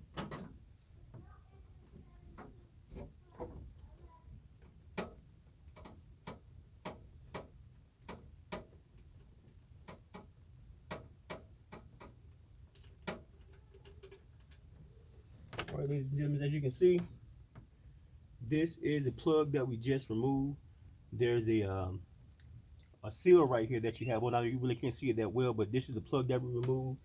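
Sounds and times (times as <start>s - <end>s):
low steady hum: 8.8s - 27.0s.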